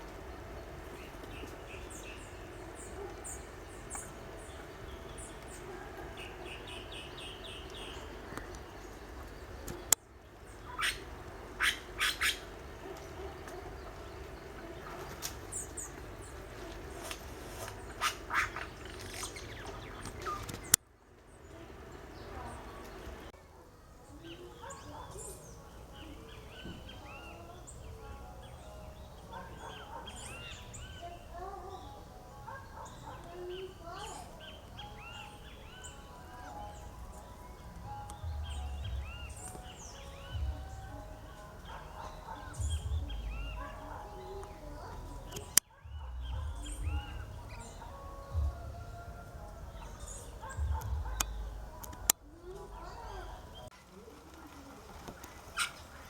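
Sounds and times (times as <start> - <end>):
birds squawking and chirping: 0.0 - 20.8, 21.4 - 56.0
steady low background: 34.6 - 53.7
low rumble: 45.9 - 52.8.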